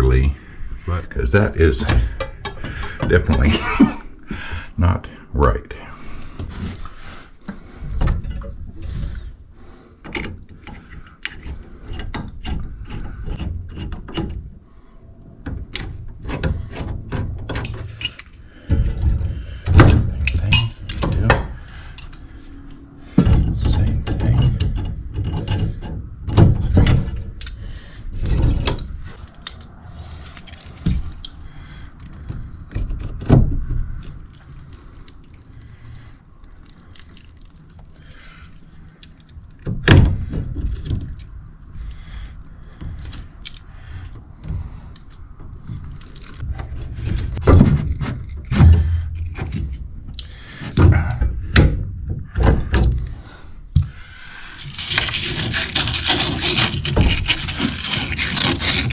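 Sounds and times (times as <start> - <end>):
tools clicking and rattling on metal: 1.7 - 3.7, 19.6 - 22.2
loud thumps and clunks: 46.4 - 49.8.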